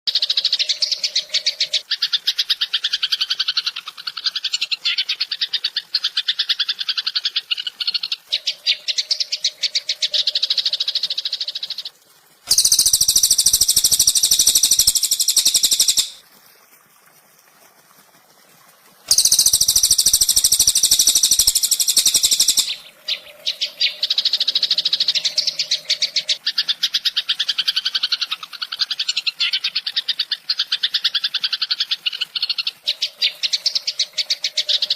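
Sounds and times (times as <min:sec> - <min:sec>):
buzzing bird trills: 0:12.5 - 0:16.2, 0:19.1 - 0:22.8.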